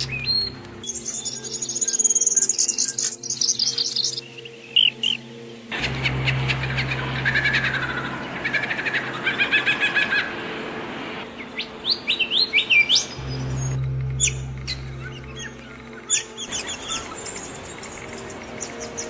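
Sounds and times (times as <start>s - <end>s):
songbirds chirping and trilling: 0.0s - 19.0s
steady low hum: 5.7s - 9.4s, 13.0s - 19.0s.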